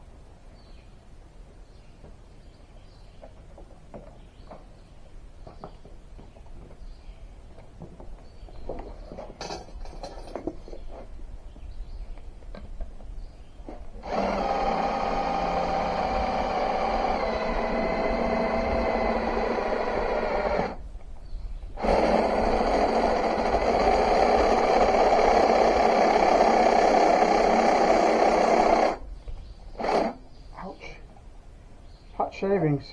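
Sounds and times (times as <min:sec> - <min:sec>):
power drill boring: 0:14.0 - 0:20.8, 0:21.8 - 0:29.0, 0:29.8 - 0:30.2.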